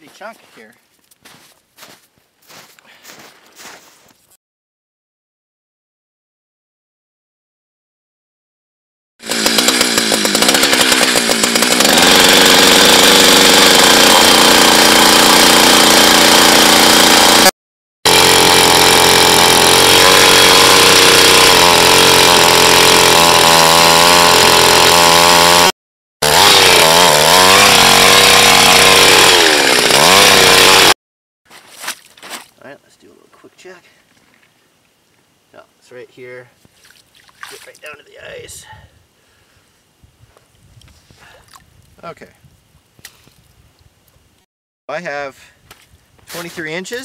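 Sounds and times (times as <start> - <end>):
ice auger engine revving: 9.2 - 17.5, 18.1 - 31.0.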